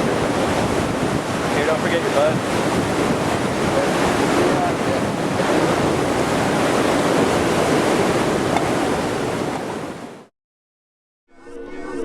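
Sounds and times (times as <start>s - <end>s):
river whitewater rushing: 0.0s - 10.2s.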